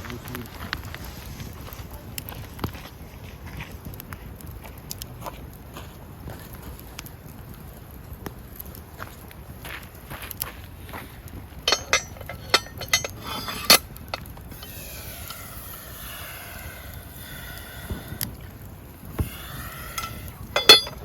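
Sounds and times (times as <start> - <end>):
wood fire crackling and popping: 0.0 - 21.0
whistling steam hiss: 11.6 - 21.0.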